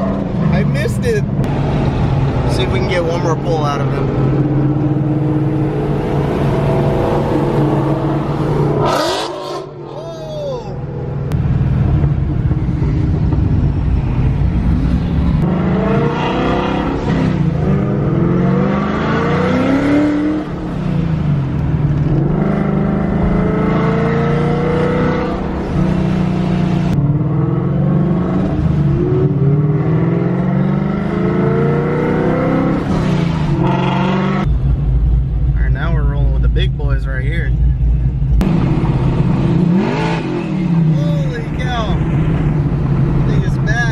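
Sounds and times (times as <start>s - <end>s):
car engine revving: 0.0s - 10.0s, 10.8s - 43.9s
low engine drone: 33.6s - 43.6s.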